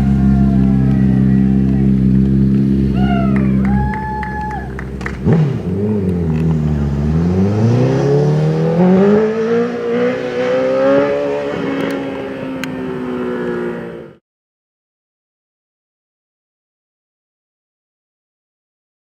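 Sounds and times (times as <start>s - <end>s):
motorcycle engine accelerating: 0.0s - 14.2s.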